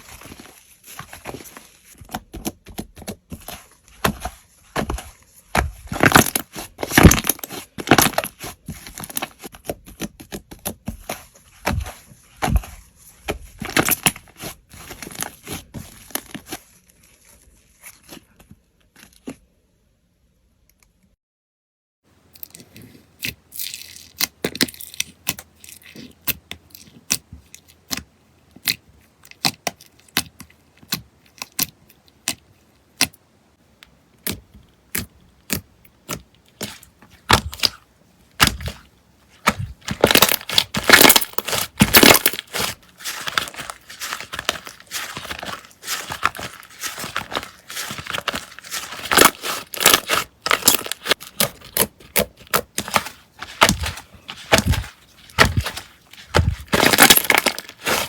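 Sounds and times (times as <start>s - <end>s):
slime popping and crackling: 39.4s - 58.0s.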